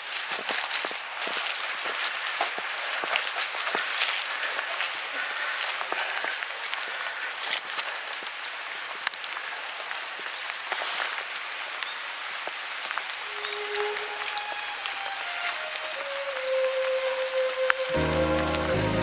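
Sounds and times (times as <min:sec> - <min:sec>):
bonfire crackling and popping: 0:00.0 - 0:19.0
faint whistling tone sliding down: 0:13.2 - 0:19.0.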